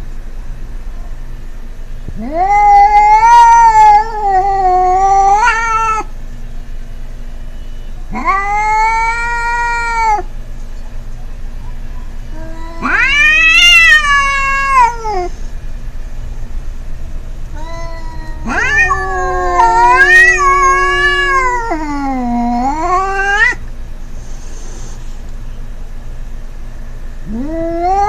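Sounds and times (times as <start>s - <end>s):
cat yowling: 2.2s - 6.1s, 8.1s - 10.3s, 12.3s - 15.4s, 17.4s - 23.6s, 27.2s - 28.0s.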